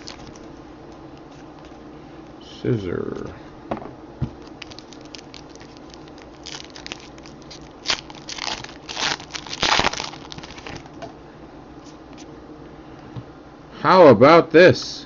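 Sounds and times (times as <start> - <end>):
wrapper crinkling and tearing: 0.0 - 0.5, 4.4 - 10.9.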